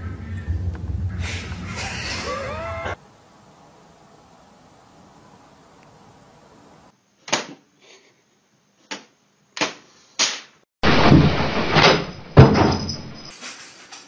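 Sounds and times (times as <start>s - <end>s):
cabinet door rattling and banging: 11.0s - 12.9s.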